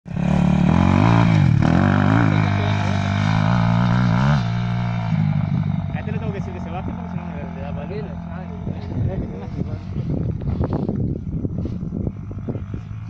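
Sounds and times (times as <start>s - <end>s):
motorcycle engine revving: 0.1s - 13.0s.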